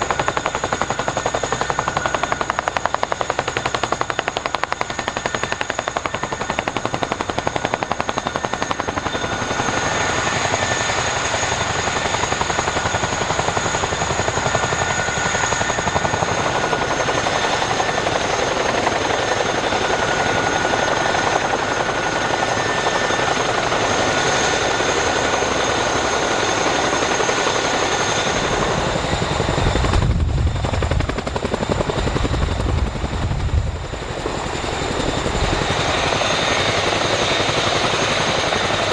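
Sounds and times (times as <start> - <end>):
helicopter rotor chop: 0.0 - 38.9
turbine whine: 6.3 - 38.9
heavy gusty low rumble: 28.6 - 34.1.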